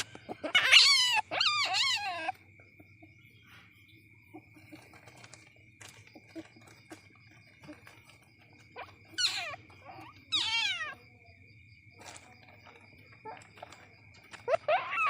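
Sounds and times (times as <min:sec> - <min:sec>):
civet whining cries: 0:00.0 - 0:02.4, 0:08.7 - 0:11.0, 0:14.3 - 0:15.0.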